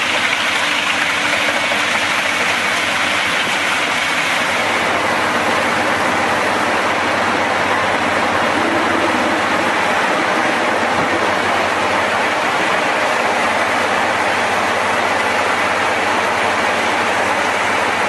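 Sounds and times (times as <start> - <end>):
wood chipper running: 0.0 - 18.0
faint engine hum: 4.5 - 18.0.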